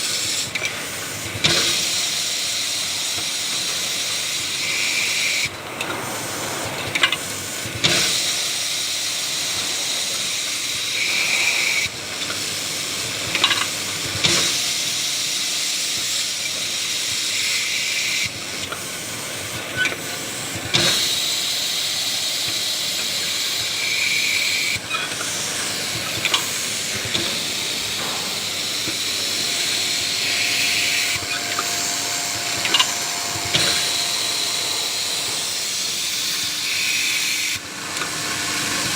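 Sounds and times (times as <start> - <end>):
drilling machine hissing: 0.0 - 38.9
machine clunks and clicks: 26.0 - 35.6.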